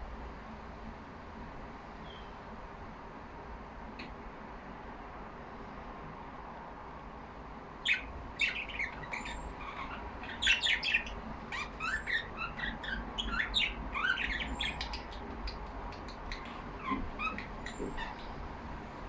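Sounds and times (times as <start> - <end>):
budgerigars chattering: 7.8 - 18.5.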